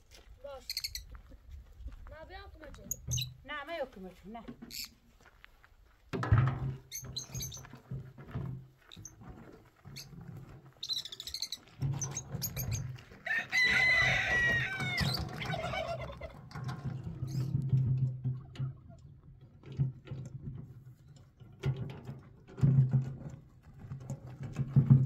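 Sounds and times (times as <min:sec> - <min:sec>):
rooster crowing: 0:13.2 - 0:16.0.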